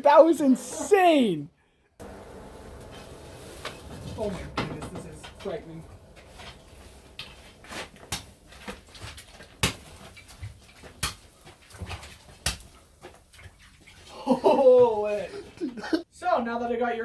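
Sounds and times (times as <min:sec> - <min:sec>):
sharp cracks: 0:02.0 - 0:12.8.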